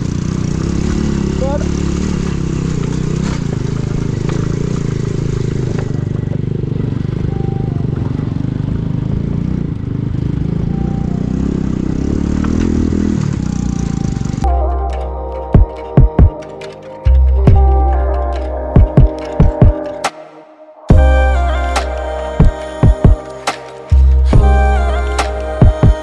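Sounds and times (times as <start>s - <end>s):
motorcycle engine under load: 0.0s - 20.1s
music: 14.4s - 26.0s.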